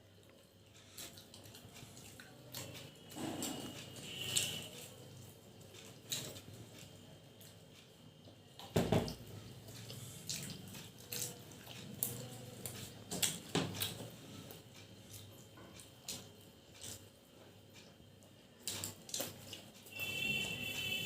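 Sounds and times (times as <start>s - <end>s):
chewing and lip smacks: 9.7s - 14.1s.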